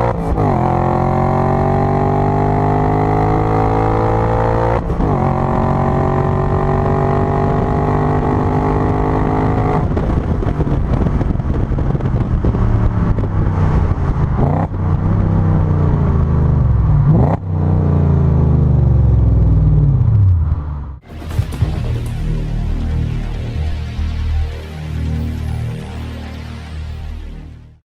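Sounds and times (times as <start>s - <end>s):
car exhaust revving: 0.0s - 27.4s.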